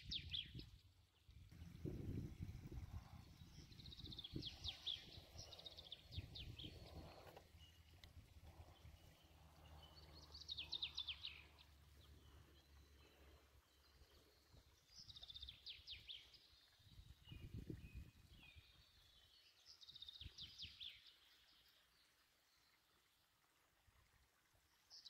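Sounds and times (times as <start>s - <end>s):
songbird singing faintly: 0.0s - 23.7s.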